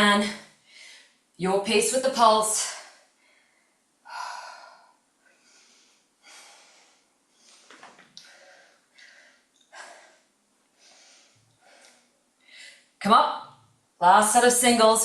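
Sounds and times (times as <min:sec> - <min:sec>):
woman breathing hard: 0:02.9 - 0:12.9.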